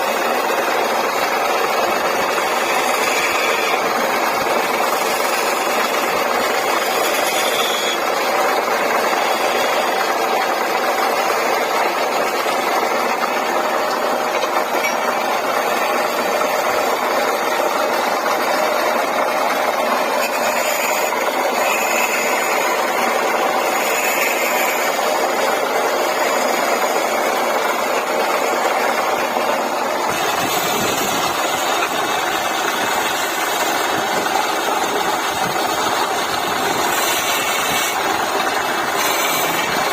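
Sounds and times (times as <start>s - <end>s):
wood lathe motor hum: 0.0s - 39.9s.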